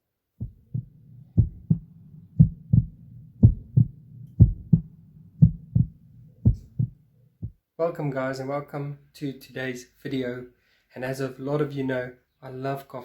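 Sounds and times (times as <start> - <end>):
heartbeat thumps: 0.4 - 7.6.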